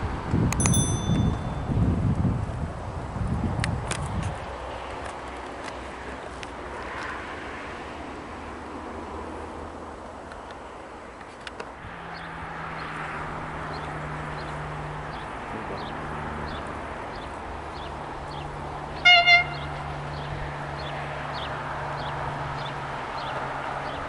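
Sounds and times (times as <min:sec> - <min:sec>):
railway horn double toot: 0:19.0 - 0:19.7.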